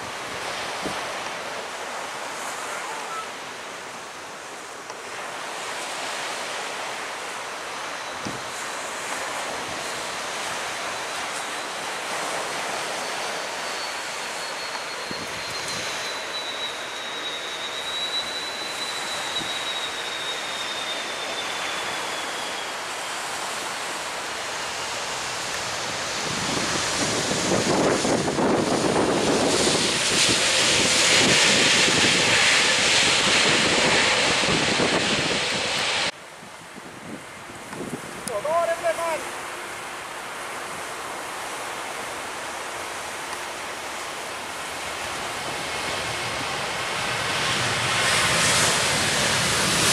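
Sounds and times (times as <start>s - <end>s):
jet airliner engine whine: 0.0s - 38.2s, 39.2s - 49.9s
surf breaking on beach: 37.9s - 47.0s.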